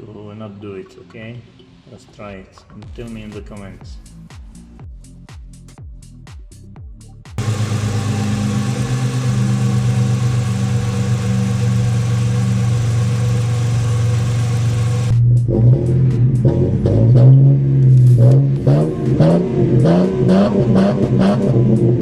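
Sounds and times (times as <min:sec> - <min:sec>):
car engine revving: 0:07.4 - 0:22.0.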